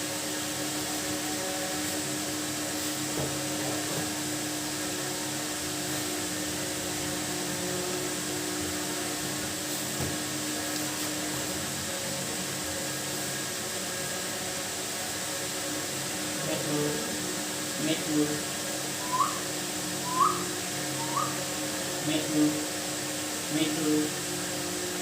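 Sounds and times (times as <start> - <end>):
small motor humming: 0.0 - 25.0
steady tone: 19.0 - 19.4.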